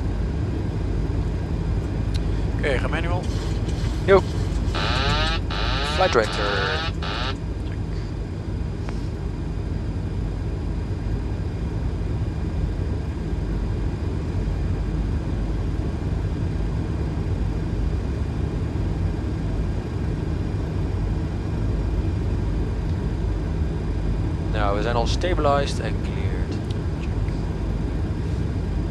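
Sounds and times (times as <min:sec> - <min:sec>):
low hum: 0:02.2 - 0:07.4.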